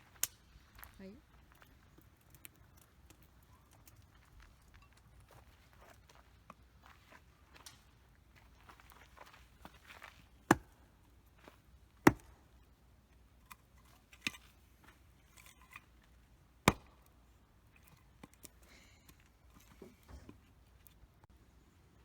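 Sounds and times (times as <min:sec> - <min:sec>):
firewood chopping cracks: 0:00.2 - 0:00.9, 0:09.7 - 0:12.7, 0:13.4 - 0:20.4.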